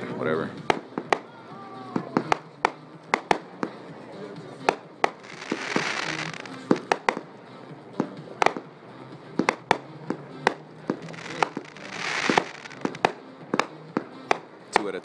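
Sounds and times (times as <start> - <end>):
firework bangs: 0.6 - 3.9, 4.6 - 7.4, 8.0 - 8.7, 9.3 - 15.0
hissing crackle of fireworks: 4.7 - 7.3, 9.4 - 15.0.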